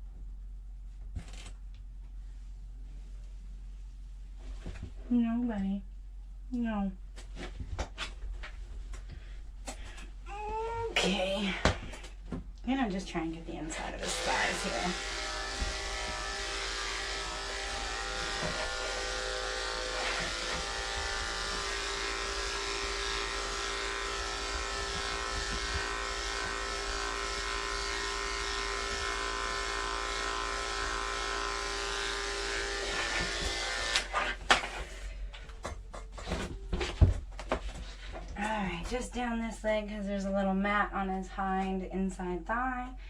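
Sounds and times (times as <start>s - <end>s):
electric clippers humming: 13.8s - 34.8s.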